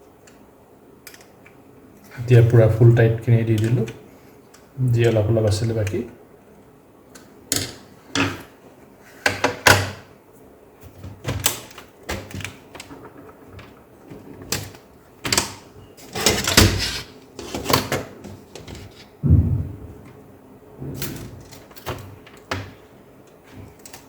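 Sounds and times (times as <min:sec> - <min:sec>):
heavy thump: 0:19.2 - 0:20.2.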